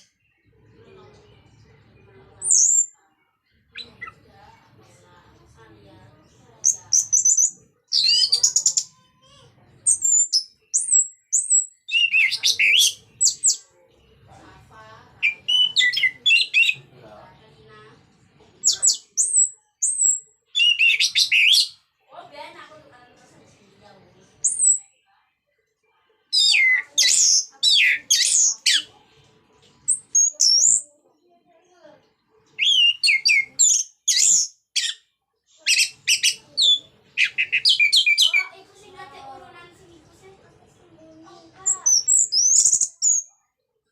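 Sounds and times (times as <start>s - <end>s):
thrush singing whistled phrases: 15.2s - 16.8s, 18.8s - 21.8s, 32.6s - 35.0s, 41.6s - 43.3s.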